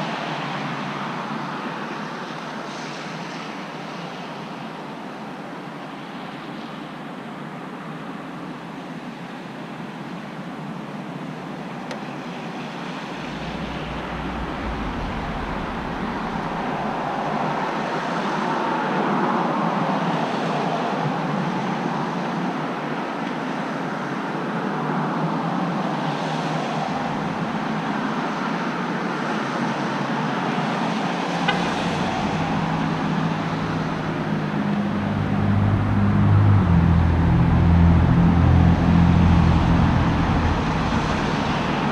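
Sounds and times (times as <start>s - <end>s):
vehicles passing: 11.9s - 18.6s, 25.9s - 29.0s, 29.6s - 41.9s
deep engine rumble: 12.8s - 17.9s, 26.6s - 28.0s, 31.3s - 41.9s.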